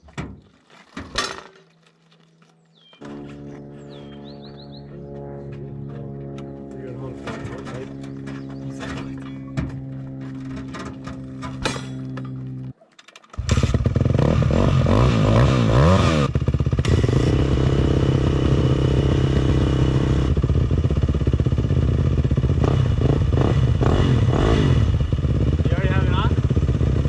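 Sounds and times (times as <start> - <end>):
dirt bike engine revving: 13.4 - 27.0.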